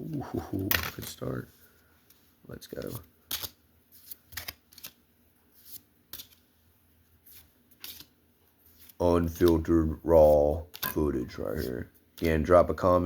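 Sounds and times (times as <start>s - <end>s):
cards swishing and flicking: 2.7s - 6.5s, 7.2s - 12.4s.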